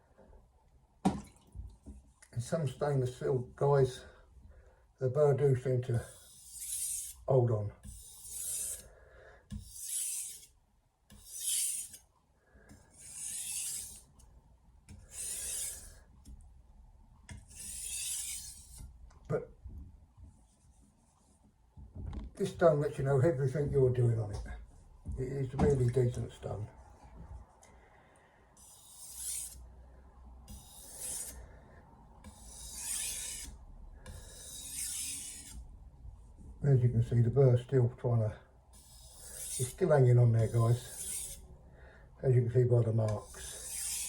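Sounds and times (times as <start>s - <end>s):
knife rasping on whetstone: 6.0s - 7.2s, 7.8s - 8.9s, 9.5s - 12.0s, 12.9s - 14.1s, 14.9s - 16.0s, 17.4s - 18.8s, 28.6s - 29.6s, 30.5s - 31.4s, 32.2s - 35.6s, 38.8s - 39.8s, 40.4s - 41.4s, 43.2s - 44.0s.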